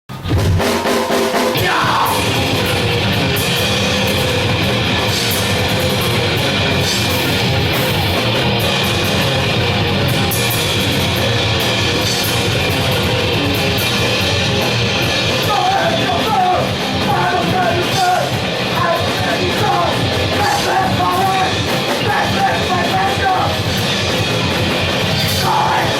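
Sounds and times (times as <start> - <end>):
bass guitar: 0.0 - 25.9
distorted guitars: 0.1 - 25.9
fast drums: 0.1 - 25.9
person yelling vocals: 1.5 - 2.3, 15.4 - 23.6, 25.4 - 25.9.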